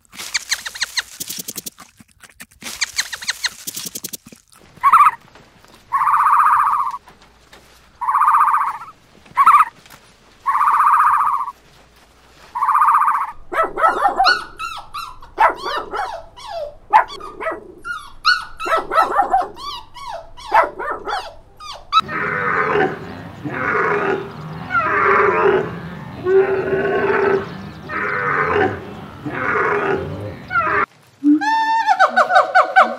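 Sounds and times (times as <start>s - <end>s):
lower animal calls: 5.9s - 7.1s, 8.0s - 9.8s, 10.4s - 11.6s, 12.5s - 32.9s
small dog yelping and barking: 12.6s - 22.0s.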